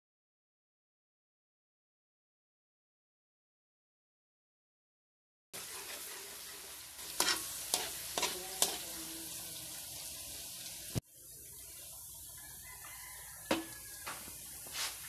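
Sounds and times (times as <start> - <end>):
onion sizzling in hot oil: 5.6 - 15.0
spatula clinking against pan: 7.2 - 8.8.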